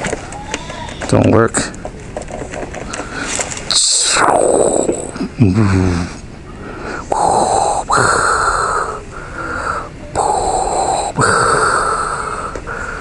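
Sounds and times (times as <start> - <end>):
respirator hissing breaths: 2.9 - 13.0
deep voice-like sound: 3.7 - 6.2, 7.0 - 9.0, 10.1 - 12.5.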